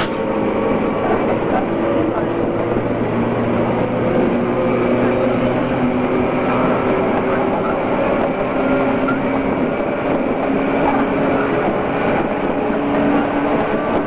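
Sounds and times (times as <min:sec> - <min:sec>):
train whining tones: 0:00.0 - 0:01.8
train wheel-on-rail rumble: 0:00.0 - 0:14.0.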